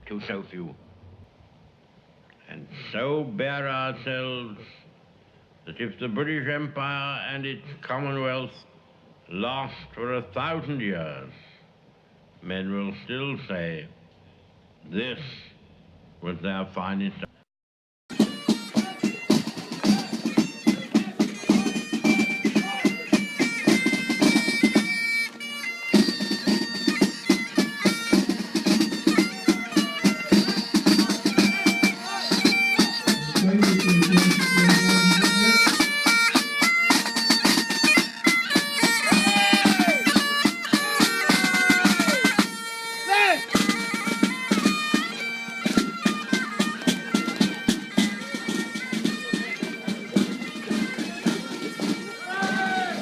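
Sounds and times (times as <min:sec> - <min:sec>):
bagpipes playing: 0:18.1 - 0:53.0
drum beating: 0:18.1 - 0:53.0.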